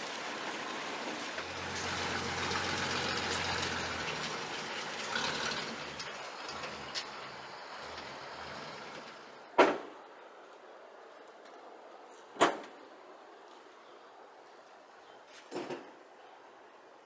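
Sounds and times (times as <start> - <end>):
vehicle running noise: 0.0 - 10.4.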